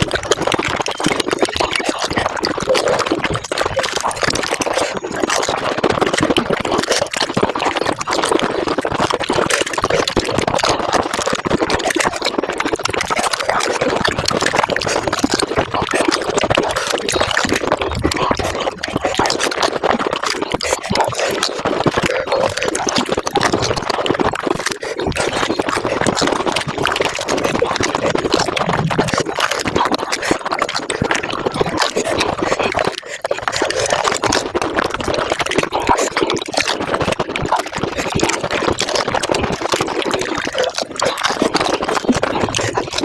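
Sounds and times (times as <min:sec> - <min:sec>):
sped-up crunching and slurping: 0:00.0 - 0:43.0.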